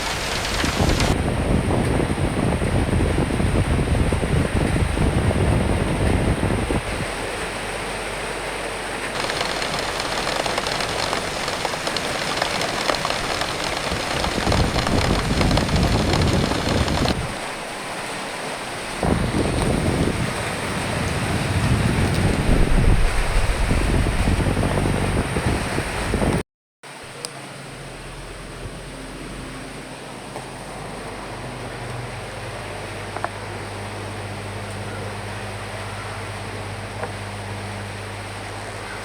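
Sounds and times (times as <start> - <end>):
rain hissing: 0.0 - 1.3, 9.0 - 24.3
wind rumble: 0.0 - 7.2, 9.2 - 17.9, 18.8 - 26.4.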